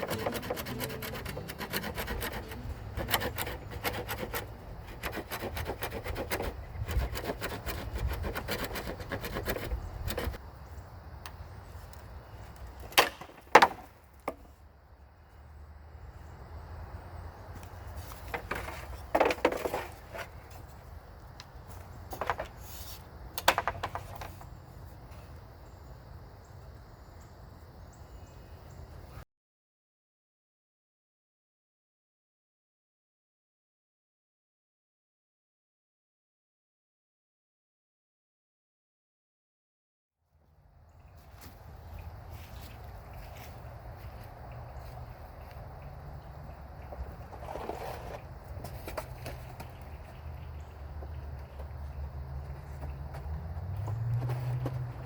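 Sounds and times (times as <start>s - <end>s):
sticks scraping together: 0.0s - 10.4s.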